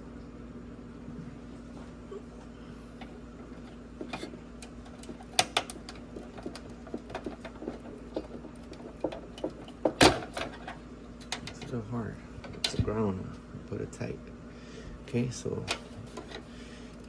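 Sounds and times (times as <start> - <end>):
steady low hum: 0.0 - 17.0
clicks and knocks on plastic: 4.0 - 11.6.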